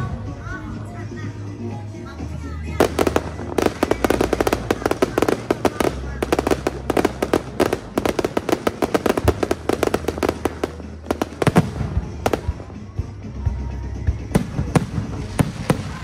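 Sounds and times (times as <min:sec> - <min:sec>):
fireworks crackling: 0:02.6 - 0:13.2, 0:14.3 - 0:16.0
fireworks bangs: 0:02.8 - 0:12.9, 0:14.4 - 0:16.0.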